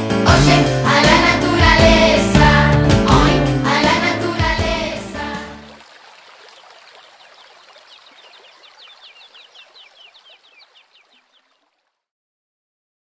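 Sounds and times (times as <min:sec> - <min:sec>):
birds chirping: 0:06.2 - 0:11.8.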